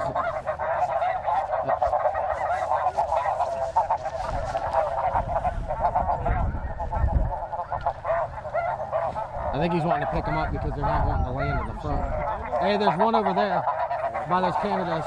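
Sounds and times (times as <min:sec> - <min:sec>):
geese honking: 0:00.0 - 0:15.0
wind rumbling on microphone: 0:02.6 - 0:12.6.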